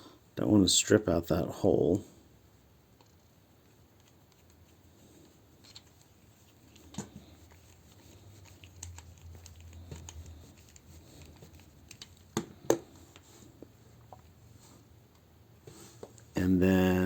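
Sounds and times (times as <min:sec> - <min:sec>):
plastic parts clicking and rustling: 0:05.6 - 0:13.3
sharp plastic knocks: 0:11.9 - 0:13.0.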